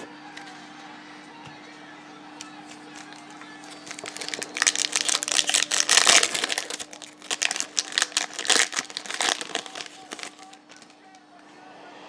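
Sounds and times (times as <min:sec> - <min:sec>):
plastic wrapper crinkling: 0:02.4 - 0:11.3.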